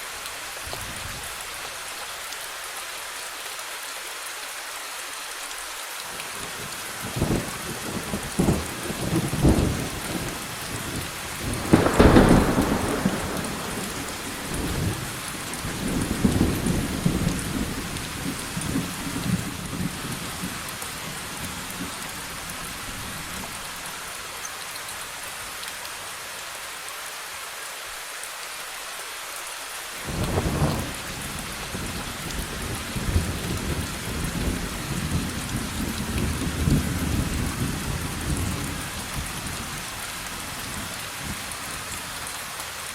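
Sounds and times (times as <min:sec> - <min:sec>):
steady rain: 0:00.0 - 0:42.9
thunder rumbling: 0:07.0 - 0:20.6, 0:30.1 - 0:39.4
loud thunderclap: 0:10.9 - 0:20.0.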